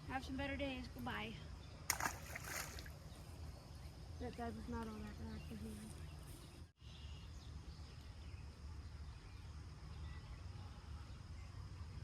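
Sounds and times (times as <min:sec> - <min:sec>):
low rumble of wind or water: 0:00.0 - 0:06.6.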